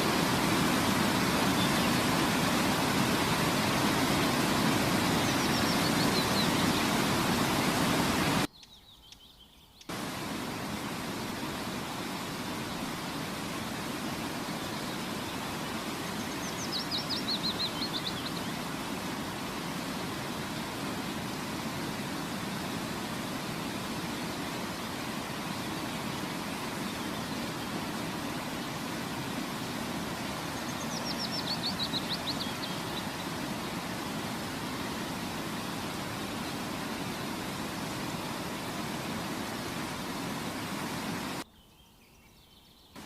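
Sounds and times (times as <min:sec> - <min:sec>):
steady rushing noise: 0:00.0 - 0:08.5, 0:09.9 - 0:41.4
bird song: 0:01.3 - 0:02.3, 0:05.1 - 0:07.6, 0:08.4 - 0:10.0, 0:14.5 - 0:18.7, 0:25.5 - 0:27.8, 0:30.4 - 0:33.8, 0:41.4 - 0:43.0.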